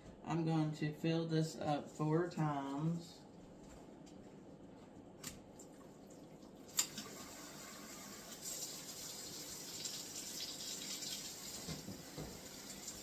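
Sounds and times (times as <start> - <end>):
water running from tap into cup: 6.5 - 13.0.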